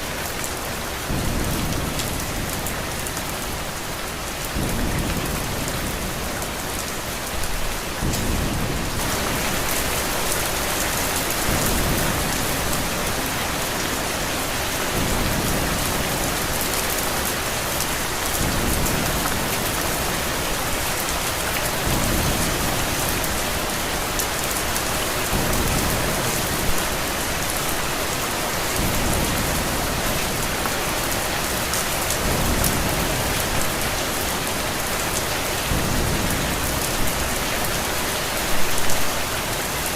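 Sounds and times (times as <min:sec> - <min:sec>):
heavy rain: 0:00.0 - 0:39.9
low thunder rumbles: 0:00.8 - 0:27.2.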